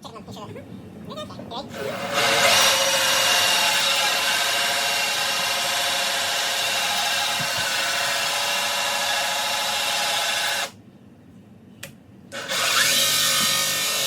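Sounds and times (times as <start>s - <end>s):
power drill hole saw cutting: 1.8s - 10.8s, 12.4s - 14.0s.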